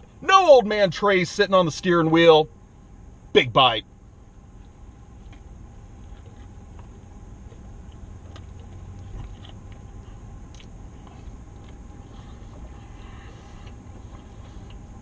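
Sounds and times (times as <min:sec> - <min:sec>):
low rumble inside a car: 0:00.0 - 0:15.0
person chewing food: 0:04.6 - 0:15.0.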